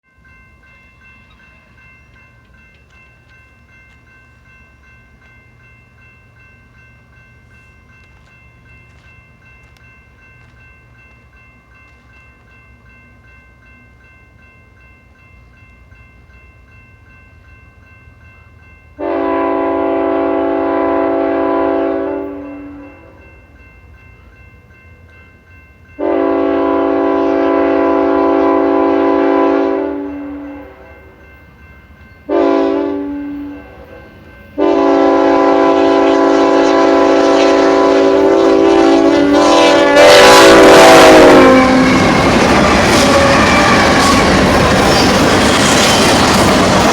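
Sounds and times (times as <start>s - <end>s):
train rumble: 0.2s - 46.9s
locomotive air horn: 19.0s - 23.1s, 26.0s - 30.4s, 32.3s - 33.9s, 34.6s - 44.3s.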